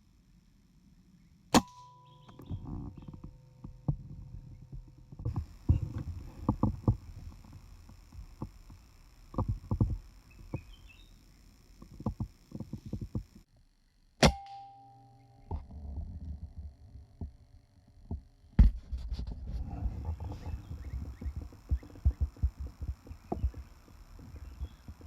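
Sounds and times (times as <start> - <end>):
gunshot with ringing tail: 1.5 - 2.0.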